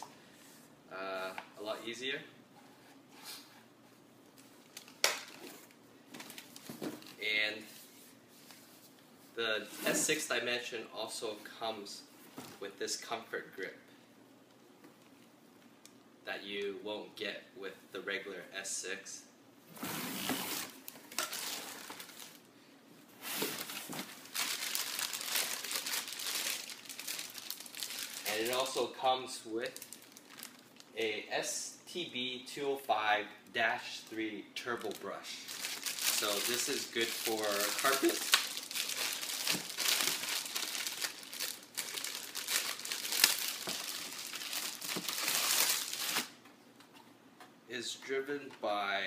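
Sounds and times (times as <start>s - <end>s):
packaging crinkling and rustling: 4.4s - 7.2s, 20.3s - 22.5s, 23.3s - 28.9s, 29.6s - 31.0s, 34.8s - 46.4s.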